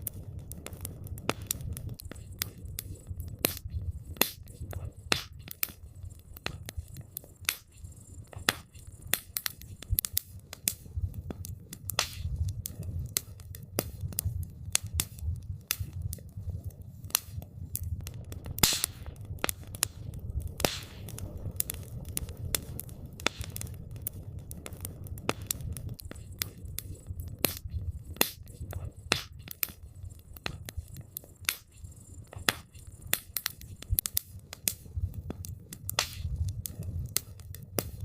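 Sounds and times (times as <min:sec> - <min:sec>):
campfire crackling: 0:00.0 - 0:38.0.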